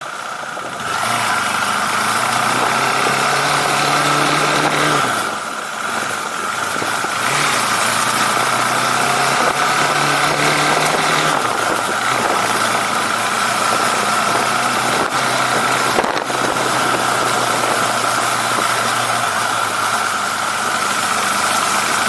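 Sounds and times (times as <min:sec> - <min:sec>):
motorcycle engine pulling: 0:00.0 - 0:22.0
wind noise: 0:02.4 - 0:19.2.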